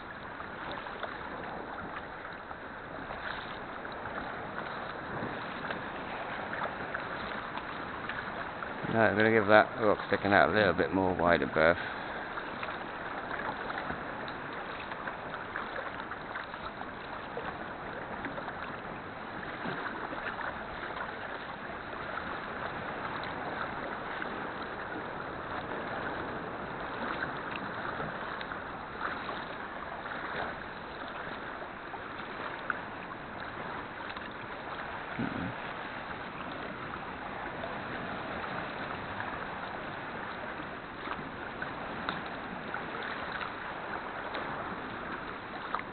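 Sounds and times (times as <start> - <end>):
paddle splashes and drips: 0.0 - 45.9
water washing around kayak: 0.0 - 45.9.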